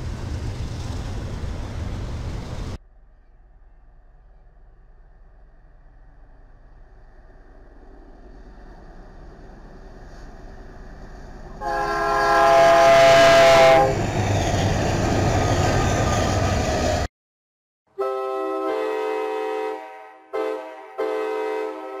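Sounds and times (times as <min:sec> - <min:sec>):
freight train rumble: 0:00.0 - 0:17.1
locomotive air horn: 0:11.6 - 0:14.0, 0:17.9 - 0:22.0.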